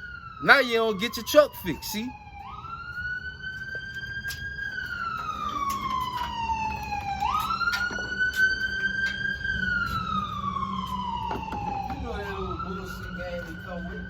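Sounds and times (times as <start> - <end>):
siren wailing: 0.0 - 14.0.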